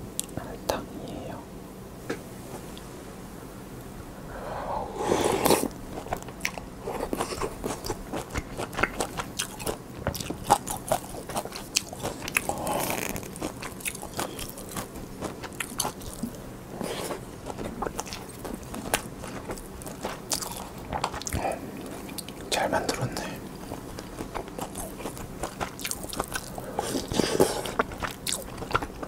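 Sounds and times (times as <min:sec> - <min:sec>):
wet chewing and mouth clicks: 0:05.3 - 0:29.0.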